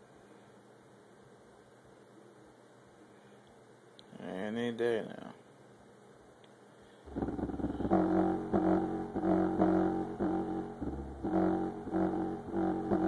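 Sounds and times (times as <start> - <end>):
bass-heavy music through subwoofer: 7.1 - 13.0.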